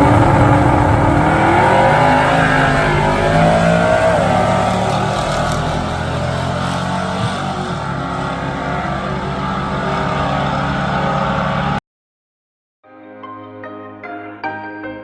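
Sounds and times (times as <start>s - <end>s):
drag racing car engine: 0.0s - 11.8s.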